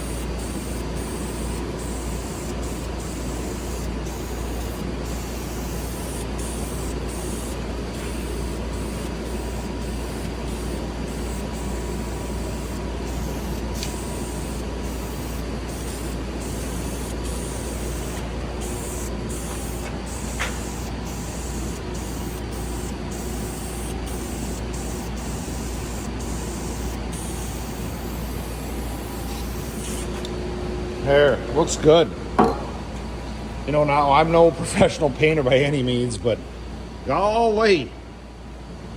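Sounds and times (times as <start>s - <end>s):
spray paint hissing: 0.0s - 30.3s
constant low hum: 0.0s - 37.2s.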